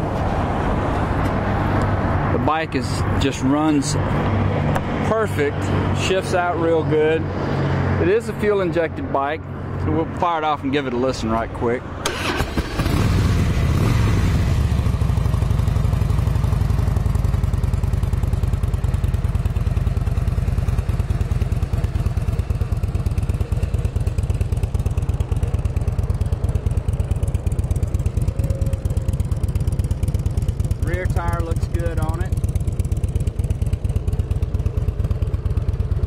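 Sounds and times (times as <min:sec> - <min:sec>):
motorcycle engine idling: 0:12.2 - 0:36.0.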